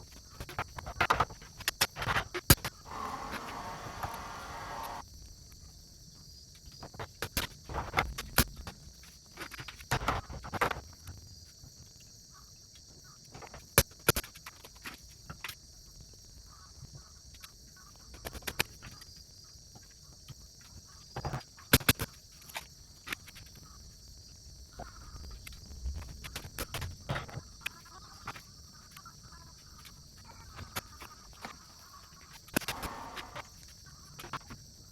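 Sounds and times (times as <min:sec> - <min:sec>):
crickets chirring: 0:14.7 - 0:34.9.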